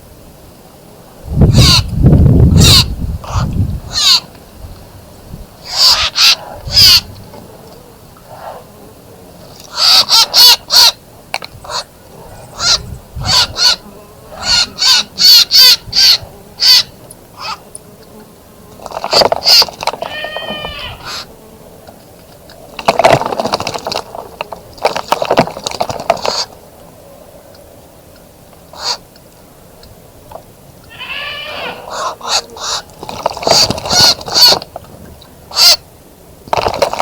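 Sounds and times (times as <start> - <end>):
birds calling harshly: 1.4 - 4.3, 5.6 - 7.1, 9.6 - 17.7, 19.0 - 21.3, 28.7 - 29.1, 30.8 - 34.7, 35.5 - 35.9.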